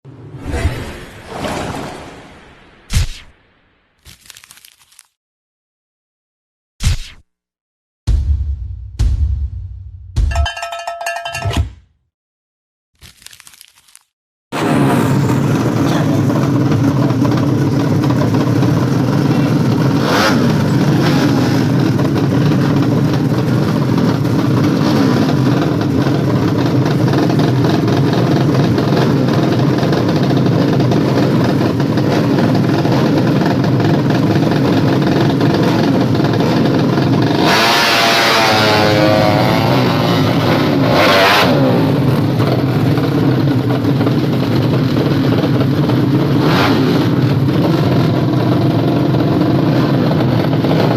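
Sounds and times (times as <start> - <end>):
motorcycle engine revving: 14.6 - 50.9.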